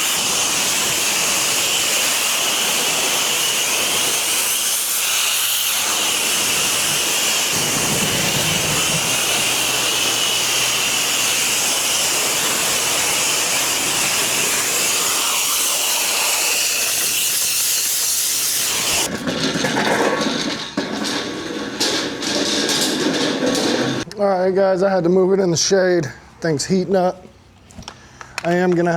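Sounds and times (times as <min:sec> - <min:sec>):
pressure washer spraying: 0:00.0 - 0:19.1.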